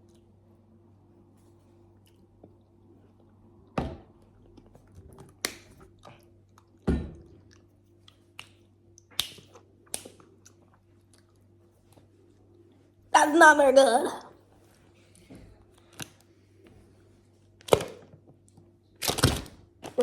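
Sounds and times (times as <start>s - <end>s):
person chewing jelly: 5.9s - 12.6s.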